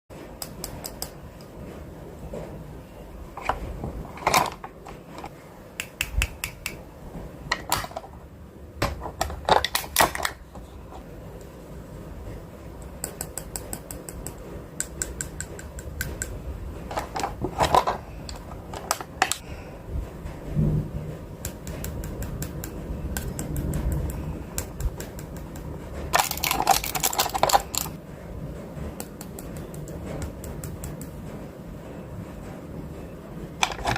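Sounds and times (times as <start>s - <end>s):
food containers clattering: 16.9s - 19.4s, 26.1s - 28.0s, 33.6s - 33.9s.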